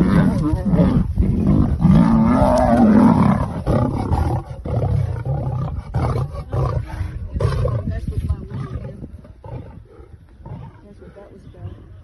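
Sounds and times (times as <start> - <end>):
lion roaring: 0.0 - 7.9.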